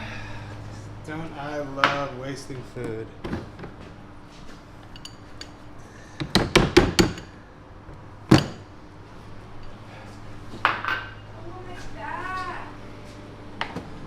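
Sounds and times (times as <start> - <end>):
hard objects knocking: 6.2 - 7.4, 8.3 - 8.7.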